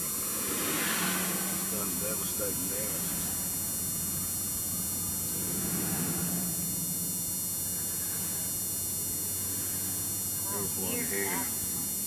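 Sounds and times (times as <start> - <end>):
background hiss: 0.0 - 12.0
steady low hum: 0.0 - 12.0.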